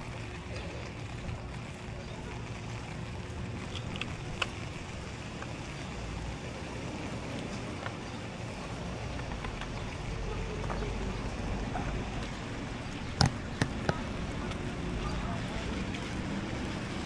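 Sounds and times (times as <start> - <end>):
steady rain: 0.0 - 17.0
sharp clicks: 13.1 - 14.2.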